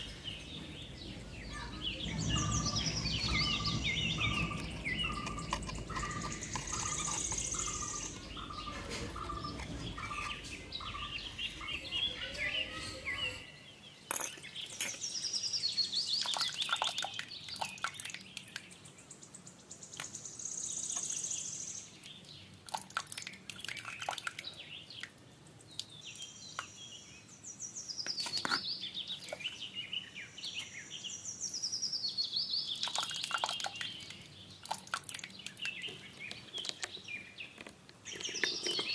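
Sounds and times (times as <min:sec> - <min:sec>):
low steady rumbling: 0:00.0 - 0:12.1
birds chirping and singing: 0:00.0 - 0:38.9.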